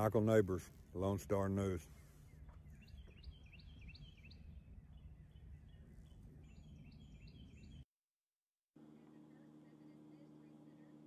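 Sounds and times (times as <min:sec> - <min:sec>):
low outdoor rumble: 0:00.0 - 0:07.8
faint birds chirping: 0:00.0 - 0:07.9.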